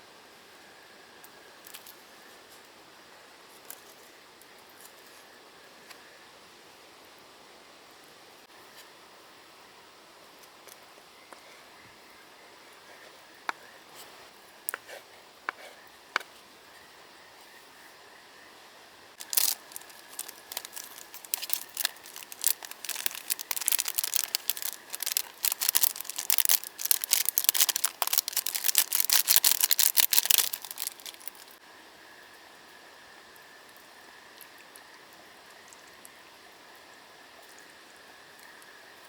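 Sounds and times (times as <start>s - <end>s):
packaging crinkling and rustling: 19.2s - 31.6s.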